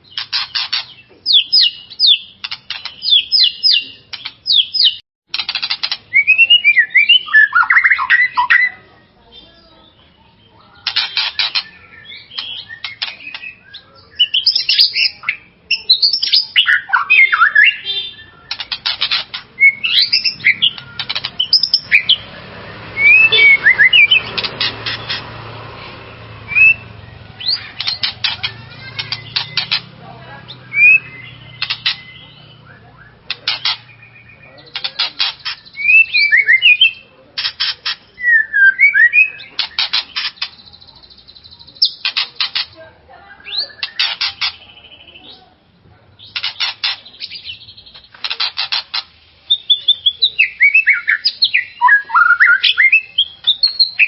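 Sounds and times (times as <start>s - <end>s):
songbird whistling and rattling: 0.0s - 8.8s, 10.8s - 22.3s, 22.9s - 25.4s, 26.2s - 29.9s, 30.5s - 45.2s, 46.2s - 54.0s.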